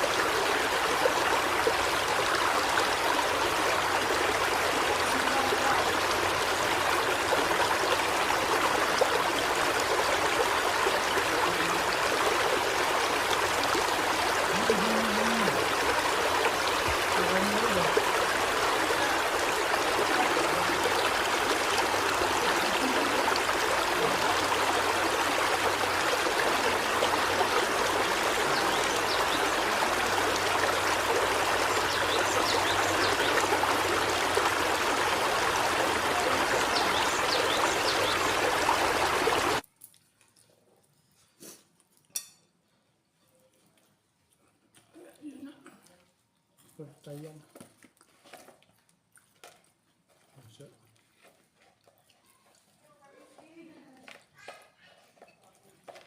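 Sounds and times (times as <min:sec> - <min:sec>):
running water rushing: 0:00.0 - 0:39.6.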